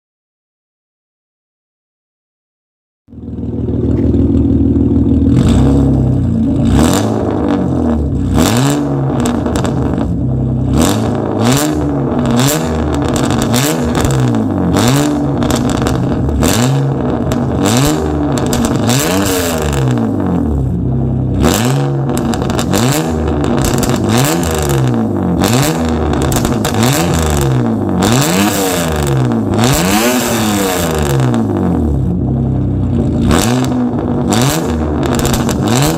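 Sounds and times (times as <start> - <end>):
car engine revving: 3.1 - 35.9.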